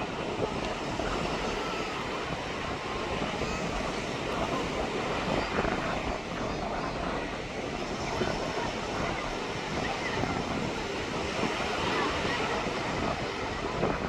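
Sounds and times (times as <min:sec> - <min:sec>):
faint voices: 0:00.0 - 0:14.0
sea surf rushing: 0:00.0 - 0:14.0
wind on the shore: 0:00.0 - 0:14.0.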